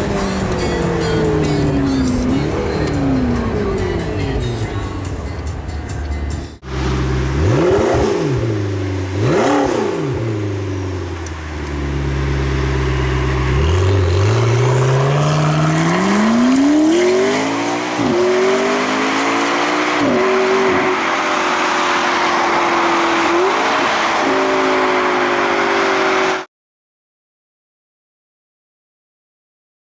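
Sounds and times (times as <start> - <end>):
wind and road noise: 0.0 - 26.5
car engine revving and accelerating: 6.6 - 26.5.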